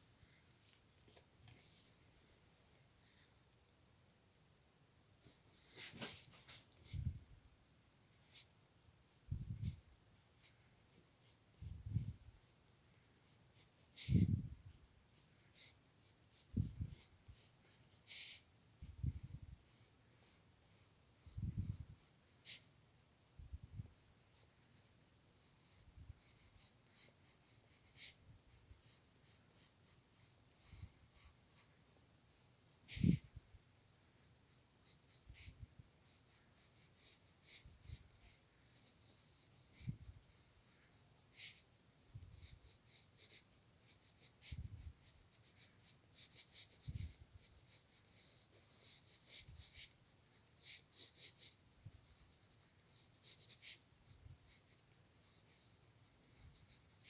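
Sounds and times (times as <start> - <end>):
drawing tool scratching on paper: 42.3 - 57.0.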